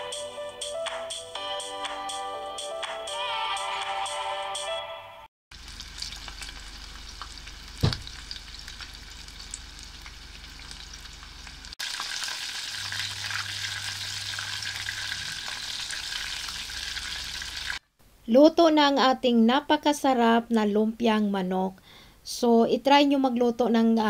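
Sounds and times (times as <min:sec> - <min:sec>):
food sizzling in hot oil: 0:05.5 - 0:17.8
sharp knock: 0:07.8 - 0:08.2.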